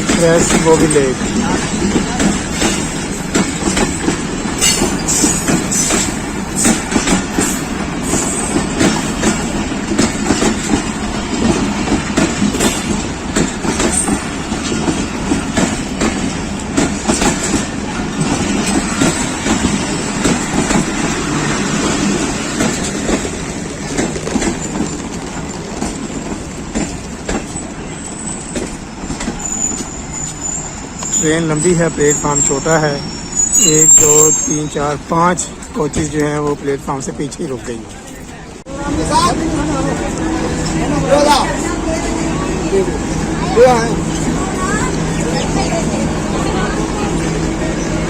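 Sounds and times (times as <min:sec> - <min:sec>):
train wheels clattering over rail joints: 0:00.0 - 0:31.1
wheel squeal: 0:27.5 - 0:34.8.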